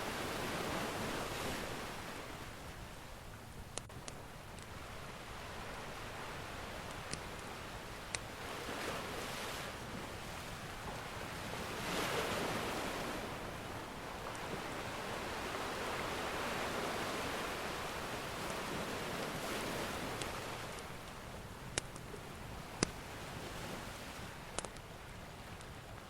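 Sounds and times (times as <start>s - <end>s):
ocean surf washing ashore: 0.0s - 26.0s
crackling wood fire pops: 24.5s - 24.9s.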